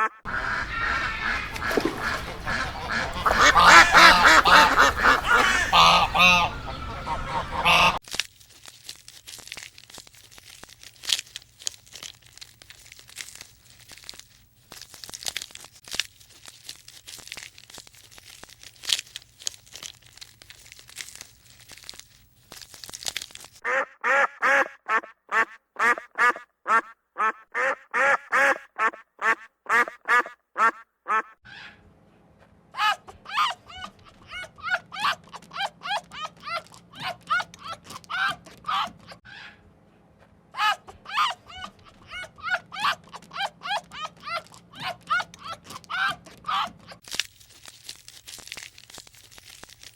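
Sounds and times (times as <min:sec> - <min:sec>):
ducks quacking: 0:00.0 - 0:08.0, 0:23.6 - 0:31.4.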